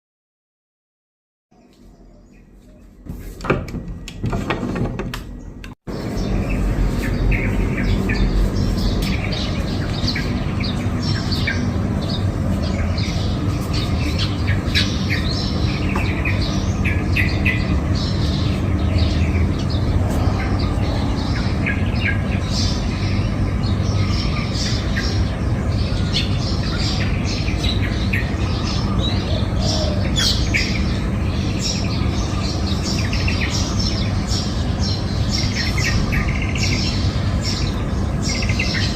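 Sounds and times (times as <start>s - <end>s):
small birds chirping: 1.5s - 3.2s, 5.4s - 38.9s
sharp knocks and clicks: 3.4s - 5.8s.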